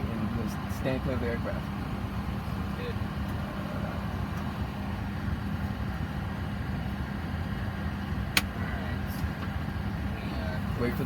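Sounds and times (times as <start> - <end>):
aircraft cockpit low hum: 0.0 - 11.0.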